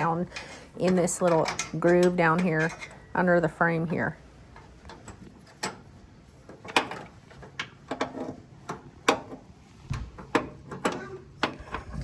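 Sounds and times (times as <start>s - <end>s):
hand tools clinking on metal: 0.0s - 3.6s.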